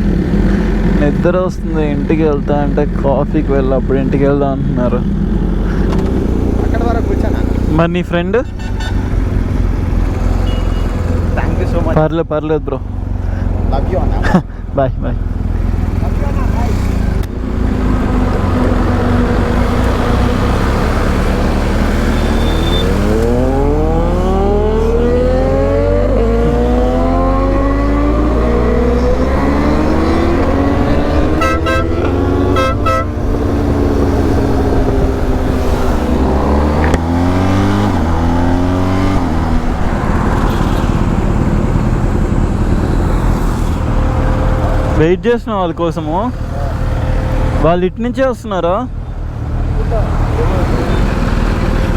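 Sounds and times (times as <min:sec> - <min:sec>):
motorcycle engines accelerating: 0:00.0 - 0:51.9
wind and road noise: 0:00.0 - 0:51.9
short horn toots: 0:08.4 - 0:09.2, 0:10.4 - 0:11.0, 0:31.2 - 0:33.3.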